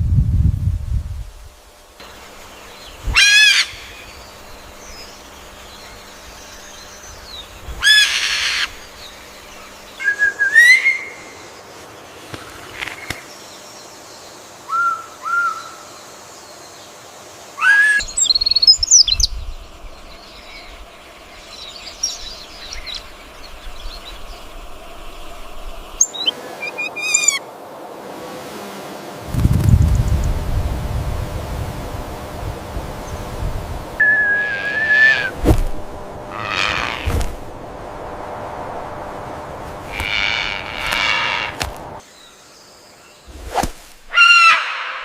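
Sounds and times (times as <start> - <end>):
birds calling: 2.0 - 27.6, 32.8 - 45.0.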